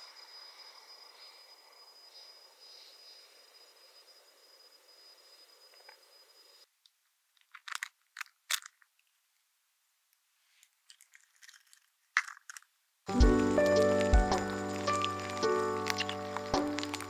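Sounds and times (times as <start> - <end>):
crunchy food being chewed: 10.6 - 12.7, 13.3 - 17.0
background music: 13.1 - 17.0.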